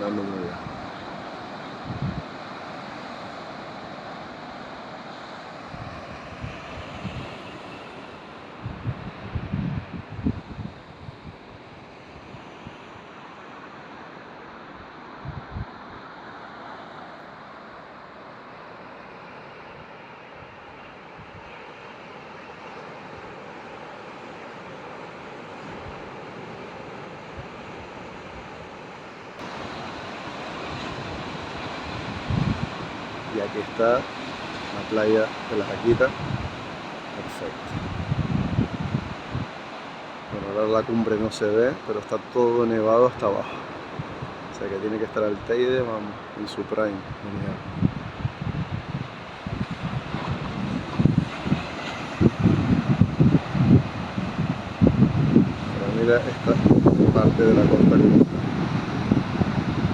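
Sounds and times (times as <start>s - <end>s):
wind gusting on microphone: 0.0s - 4.3s, 5.6s - 12.8s, 15.2s - 15.8s, 29.4s - 59.9s
surf rushing: 0.0s - 59.9s.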